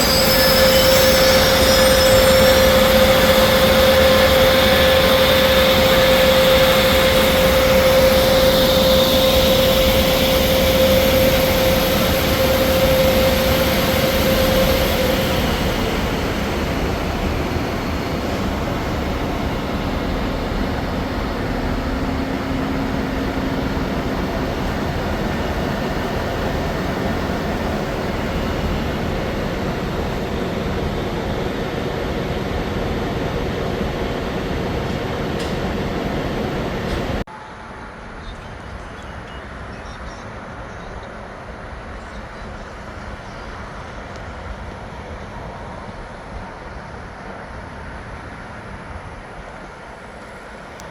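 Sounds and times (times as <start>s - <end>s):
steady train whine: 0.0s - 50.9s
train passing rumble: 0.0s - 50.9s.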